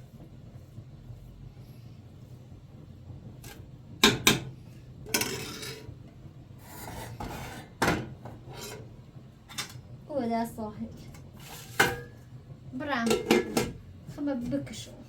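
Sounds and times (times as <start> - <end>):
low background hum: 0.0 - 15.0
rubbing and scraping: 6.6 - 7.8.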